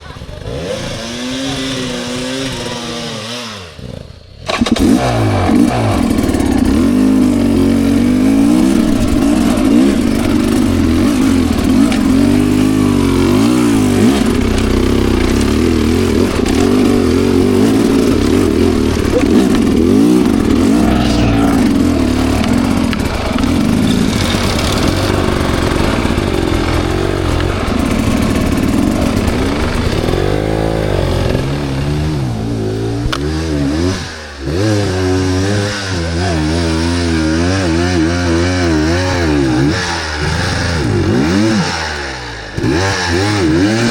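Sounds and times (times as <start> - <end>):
dirt bike engine revving: 0.0 - 43.9
clatter: 3.8 - 21.1, 21.7 - 43.9.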